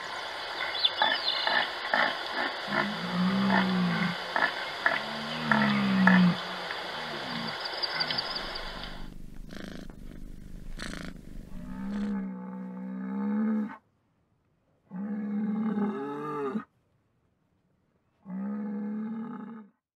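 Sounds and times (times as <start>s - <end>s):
rough noise bursts: 0.0s - 12.2s
cow mooing: 2.7s - 6.4s, 9.3s - 13.8s.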